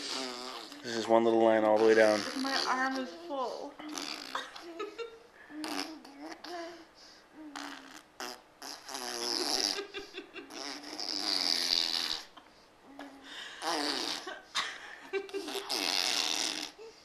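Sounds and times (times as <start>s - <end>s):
baby blowing raspberries: 0.0s - 1.1s, 1.7s - 3.0s, 3.8s - 4.4s, 5.5s - 6.6s, 7.4s - 12.4s, 13.0s - 14.3s, 15.3s - 17.0s.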